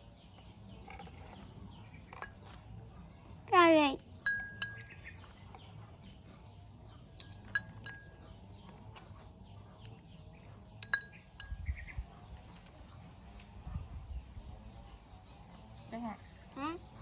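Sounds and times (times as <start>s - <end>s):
tableware clinking: 4.3s - 5.0s, 7.2s - 8.3s, 10.8s - 11.6s.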